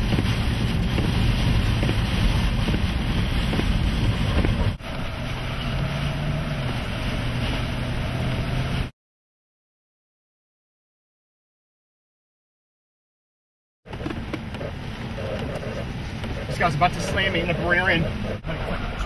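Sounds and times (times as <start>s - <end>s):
rain: 0.0s - 8.9s, 14.0s - 19.0s
vehicle engine running: 0.0s - 8.9s, 13.9s - 19.0s.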